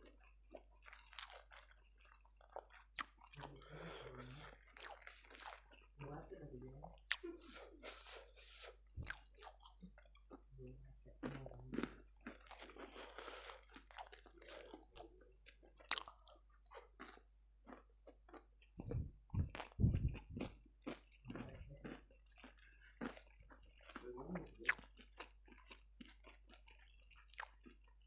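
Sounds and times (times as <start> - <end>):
person chewing crispy food: 0.0 - 28.0
low thuds: 18.8 - 20.5.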